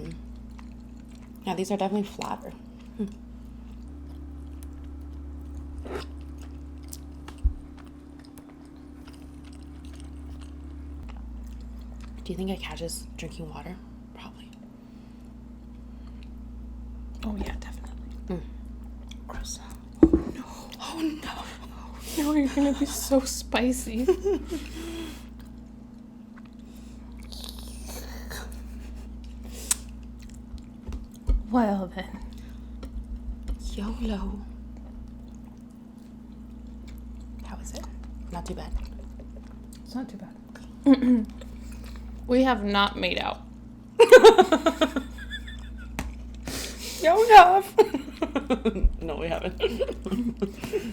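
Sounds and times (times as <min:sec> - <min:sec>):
steady low hum: 0:00.0 - 0:50.9
chewing with wet mouth clicks: 0:00.1 - 0:01.4, 0:02.1 - 0:12.3, 0:18.8 - 0:20.0, 0:25.3 - 0:27.7, 0:29.2 - 0:31.3, 0:34.7 - 0:39.9
low thump: 0:20.0 - 0:20.4.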